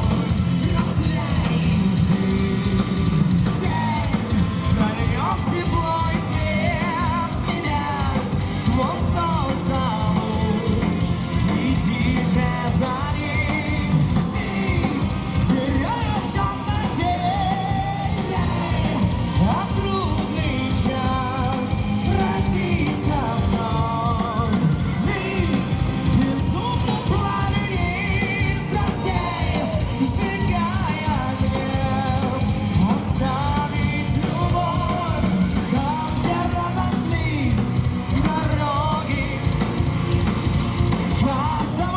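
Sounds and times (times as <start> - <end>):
heavy metal band playing: 0.0 - 41.9.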